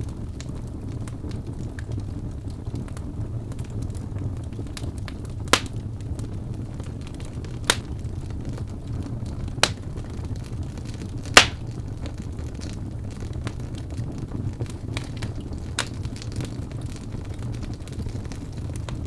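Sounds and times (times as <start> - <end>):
fire crackling: 0.0 - 19.0
low fire rumble: 0.0 - 19.0
sharp pops: 5.6 - 5.8, 7.7 - 7.9, 9.6 - 9.8, 11.4 - 11.6.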